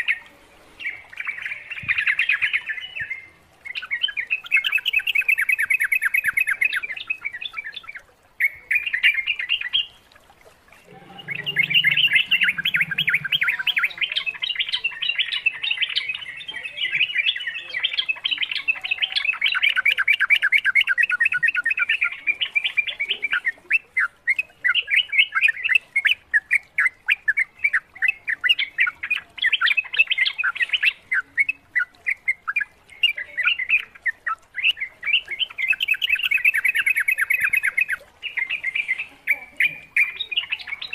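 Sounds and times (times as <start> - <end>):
birds chirping: 10.7 - 40.9.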